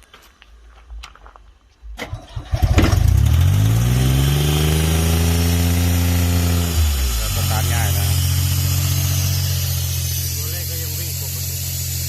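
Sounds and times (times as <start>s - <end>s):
diesel engine starter cranking: 2.0s - 4.0s
diesel engine running: 2.1s - 12.0s.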